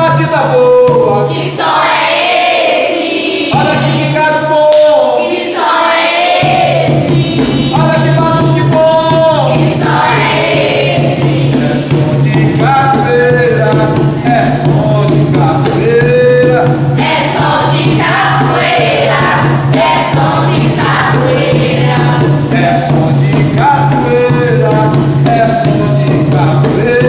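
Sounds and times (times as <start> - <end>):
group of voices singing: 0.0 - 27.0
percussion accompaniment: 0.0 - 27.0.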